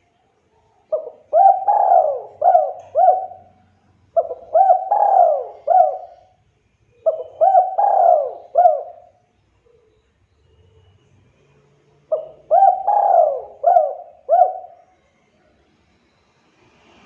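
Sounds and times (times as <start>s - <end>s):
dove cooing: 0.9s - 10.0s, 12.1s - 15.0s.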